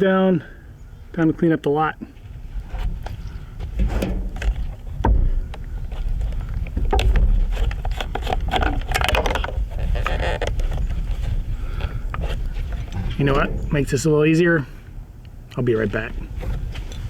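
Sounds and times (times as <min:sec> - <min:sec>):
steady low rumble: 0:02.3 - 0:07.5, 0:11.0 - 0:16.8
logs knocking and dragging: 0:02.6 - 0:15.0.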